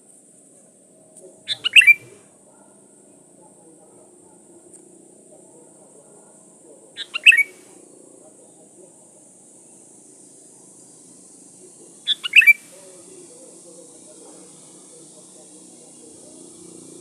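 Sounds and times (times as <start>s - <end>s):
steady high hiss: 0.0s - 17.0s
bird singing clear notes: 1.4s - 2.2s, 7.0s - 7.6s, 11.3s - 13.0s.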